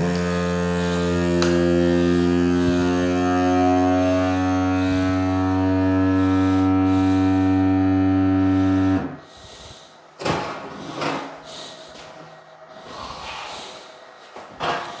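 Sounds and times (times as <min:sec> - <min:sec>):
small electric motor humming: 0:00.0 - 0:09.2
short breathy puffs: 0:08.5 - 0:15.0.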